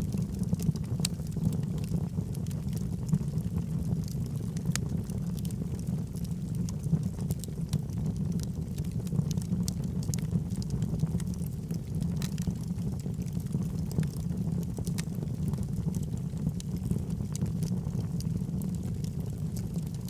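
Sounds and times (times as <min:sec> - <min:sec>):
log fire crackling: 0:00.0 - 0:20.0.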